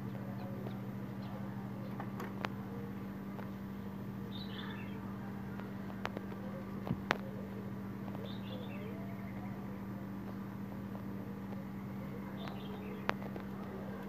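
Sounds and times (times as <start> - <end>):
steady low hum: 0.0 - 14.0
small bird chirping: 4.2 - 5.1, 7.1 - 9.8, 11.4 - 14.0.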